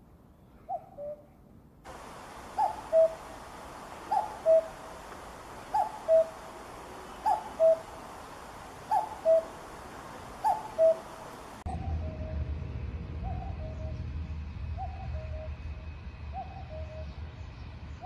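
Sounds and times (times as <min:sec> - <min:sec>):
cuckoo calling: 0:01.9 - 0:12.3.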